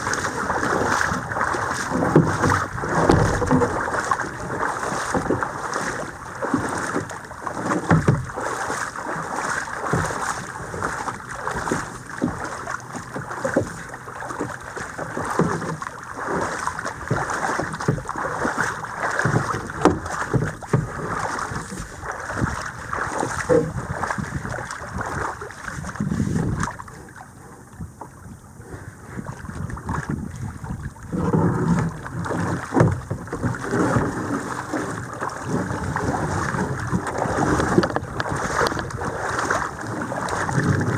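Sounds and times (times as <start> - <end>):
paddle splashing water: 0.0 - 40.9
knocks on kayak: 2.0 - 4.4, 7.7 - 8.3, 19.3 - 21.8, 31.1 - 34.3.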